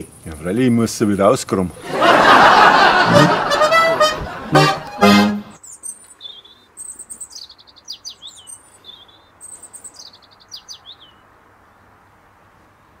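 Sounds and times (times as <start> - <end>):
songbird chirping and trilling: 4.3 - 11.9.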